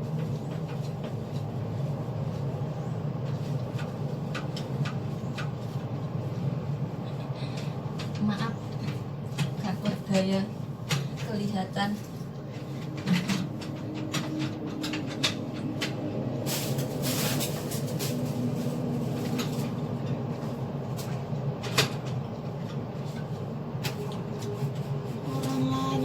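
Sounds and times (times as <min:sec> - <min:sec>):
steady low hum: 0:00.0 - 0:26.0
knocks and clicks of handling: 0:12.0 - 0:16.1.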